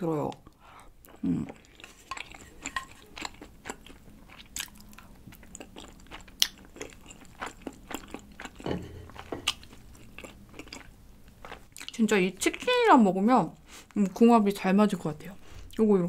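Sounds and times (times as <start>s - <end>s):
wet chewing mouth clicks: 3.2s - 8.6s.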